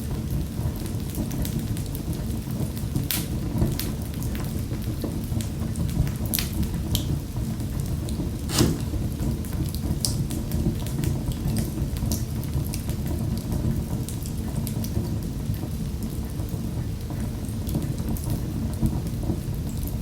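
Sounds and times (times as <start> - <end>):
wood fire crackling: 6.3 - 9.5.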